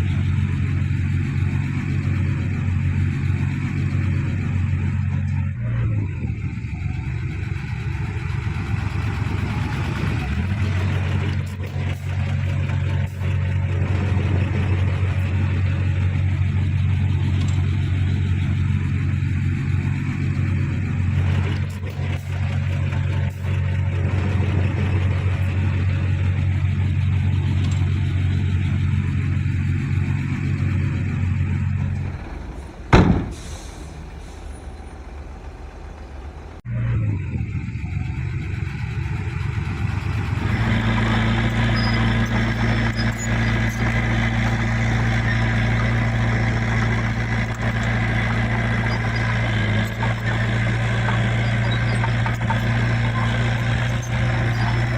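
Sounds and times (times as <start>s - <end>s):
heavy diesel engine running: 0.0s - 54.9s
sharp bang: 32.5s - 34.5s.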